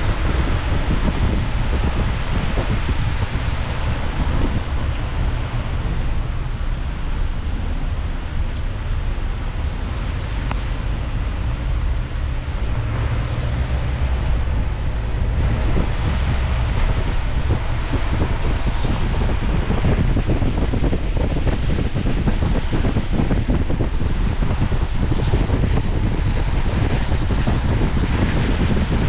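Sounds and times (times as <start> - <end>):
car road noise rumble: 0.0 - 29.0
wind on microphone: 0.0 - 29.0.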